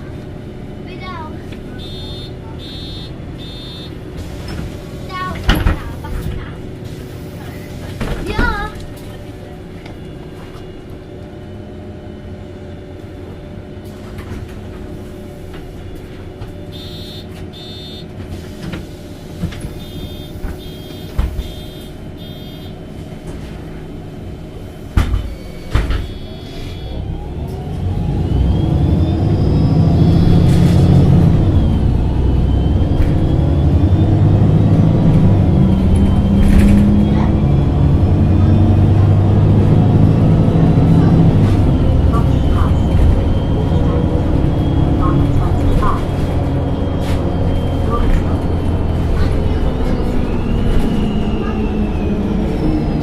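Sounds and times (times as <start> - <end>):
bus engine idling and accelerating: 0.0 - 53.0
short high beeps: 1.8 - 3.9, 16.8 - 18.0, 19.8 - 22.8, 25.3 - 27.0.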